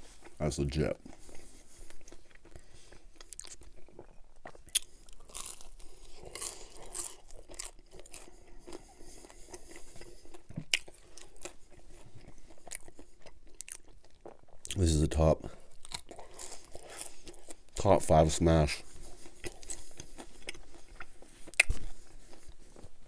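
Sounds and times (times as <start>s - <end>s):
moist chewing sounds: 0.0s - 17.8s, 18.7s - 23.0s
pizza crust crunching: 0.7s - 15.0s, 15.7s - 17.7s.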